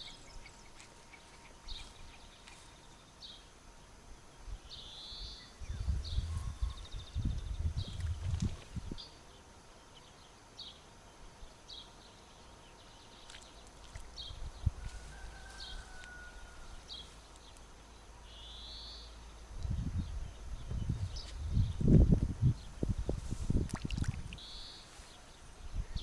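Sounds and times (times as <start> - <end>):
songbird chirping: 0.0 - 26.0
low rumbling on microphone: 5.6 - 9.2, 14.0 - 17.1, 19.4 - 24.7.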